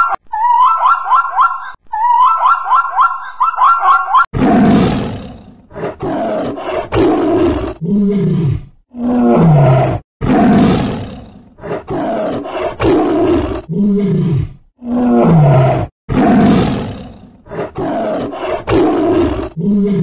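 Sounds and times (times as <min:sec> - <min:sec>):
lion roaring: 0:04.4 - 0:20.0.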